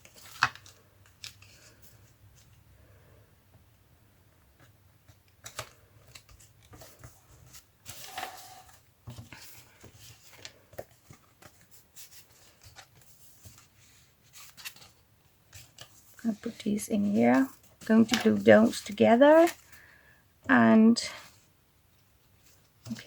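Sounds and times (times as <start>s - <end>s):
paper rustling: 0.0s - 2.6s, 4.6s - 19.8s.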